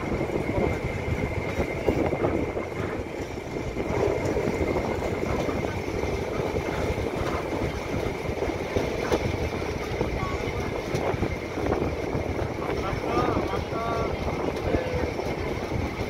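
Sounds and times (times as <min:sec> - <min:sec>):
train wheels rattling on track: 0:00.0 - 0:16.0.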